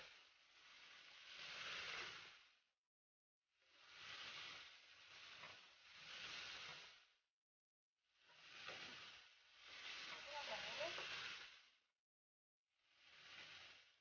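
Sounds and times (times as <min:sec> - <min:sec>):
wooden spatula stir-frying: 0:00.0 - 0:02.5, 0:03.7 - 0:07.2, 0:08.2 - 0:11.8, 0:12.8 - 0:14.0
vegetables sizzling faintly in a wok: 0:00.0 - 0:02.8, 0:03.5 - 0:07.3, 0:08.0 - 0:12.0, 0:12.8 - 0:14.0.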